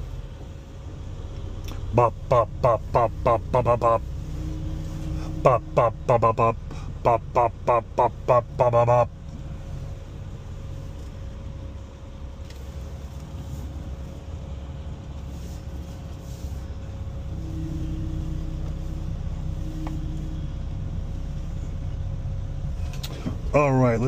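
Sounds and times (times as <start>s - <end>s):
truck diesel engine running: 0.0s - 24.0s.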